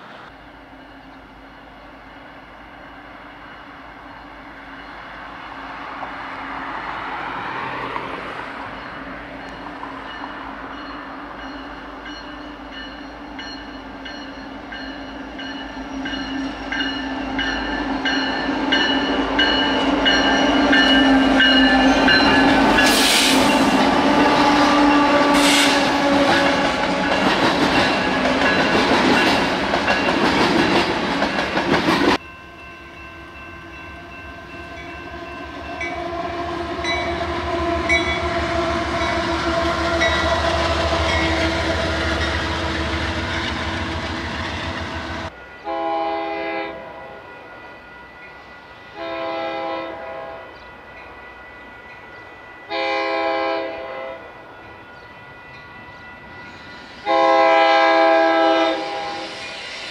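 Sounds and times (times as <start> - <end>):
train passing close: 0.0 - 59.9
train rumble: 0.0 - 59.9
locomotive air horn blasts: 19.9 - 27.2, 33.6 - 44.0, 45.6 - 47.2, 48.9 - 50.5, 52.7 - 54.3, 57.0 - 59.4.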